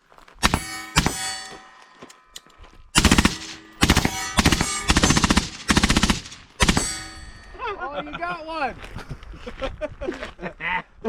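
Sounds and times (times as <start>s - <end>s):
machine gun fire: 0.4s - 1.2s, 3.0s - 7.2s
metallic ringing: 0.4s - 8.4s.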